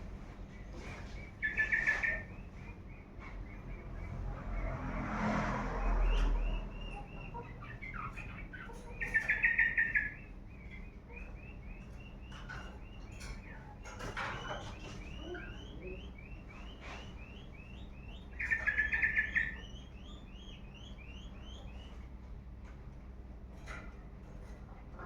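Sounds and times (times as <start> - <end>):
small birds chirping: 0.1 - 4.7, 5.8 - 22.6
bird rapid trill: 1.2 - 2.8, 5.8 - 13.4, 14.0 - 22.0.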